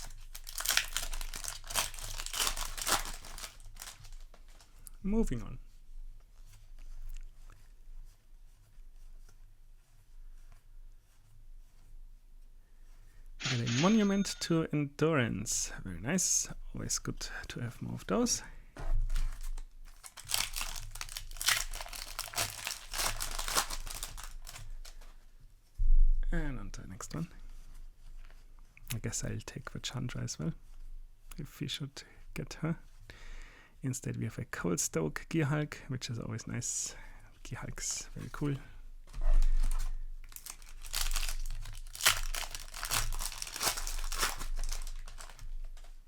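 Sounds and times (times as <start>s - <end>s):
foil wrapper crinkling: 0.0s - 4.8s, 19.1s - 25.0s, 39.6s - 46.0s
sharp click: 13.4s - 14.4s.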